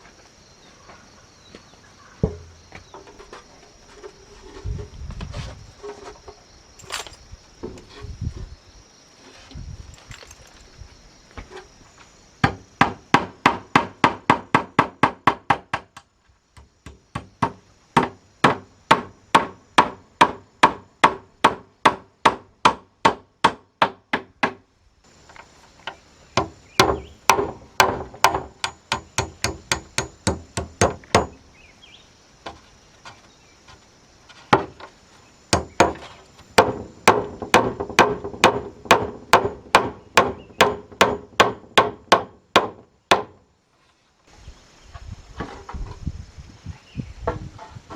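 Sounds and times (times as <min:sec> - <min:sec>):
hammer driving nails into wood: 0:26.4 - 0:31.4, 0:35.5 - 0:43.4.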